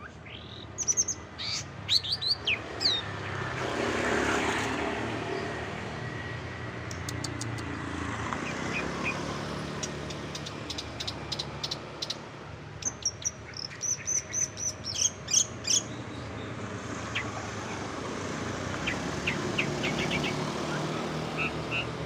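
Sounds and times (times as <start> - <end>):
bird singing clicks and chirps: 6.8 - 16.1.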